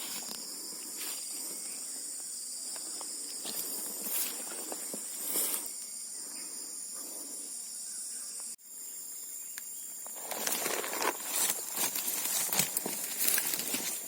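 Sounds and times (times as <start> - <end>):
high-pitched insect chorus: 0.0 - 14.0
rustling and crackling: 10.2 - 14.0.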